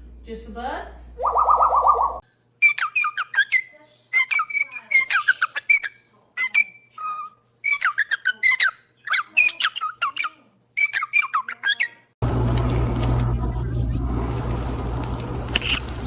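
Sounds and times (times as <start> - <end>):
parrot chirping and whistling: 1.2 - 12.1
steady low hum: 12.2 - 16.0.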